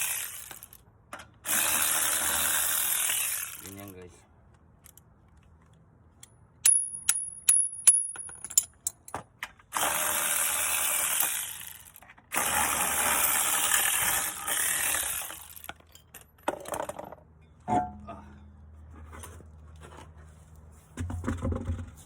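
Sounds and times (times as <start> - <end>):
metal tools clinking on metal: 6.6 - 9.2, 15.6 - 16.4.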